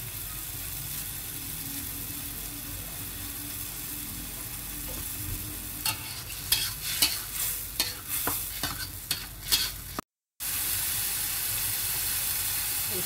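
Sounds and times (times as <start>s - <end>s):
chili paste sizzling in oil: 0.0s - 13.0s
metal spatula scraping wok: 4.9s - 10.0s.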